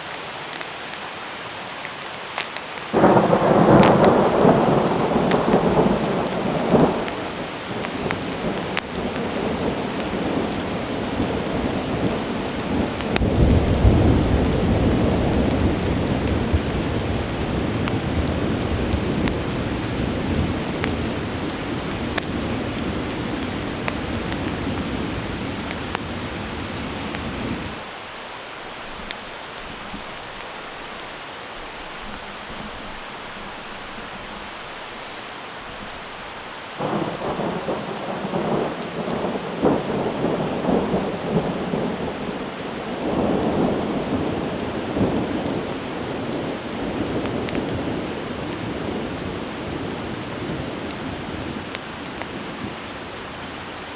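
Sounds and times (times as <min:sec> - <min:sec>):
heavy rain falling: 0:00.0 - 0:53.9
thunder rumbling: 0:02.9 - 0:31.0, 0:31.6 - 0:52.9
loud thunder clap: 0:03.0 - 0:10.4, 0:36.8 - 0:45.6.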